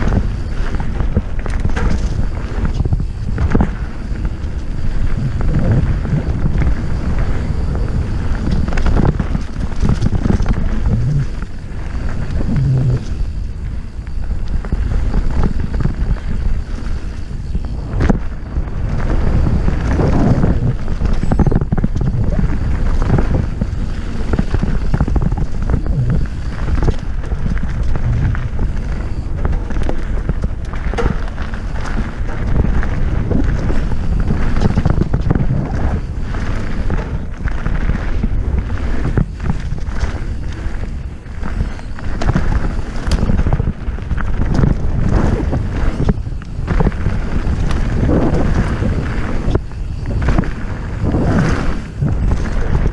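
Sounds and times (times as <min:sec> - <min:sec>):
bike clattering and knocking: 0:00.0 - 0:04.8, 0:29.4 - 0:35.2
tyres rumbling on rough trail: 0:00.0 - 0:52.9
wind buffeting microphone: 0:00.0 - 0:52.9.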